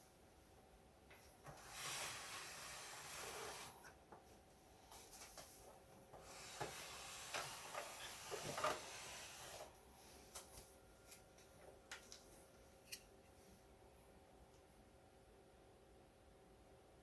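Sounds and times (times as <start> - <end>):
rubbing and rustling on workbench: 1.5 - 4.0, 4.9 - 9.8.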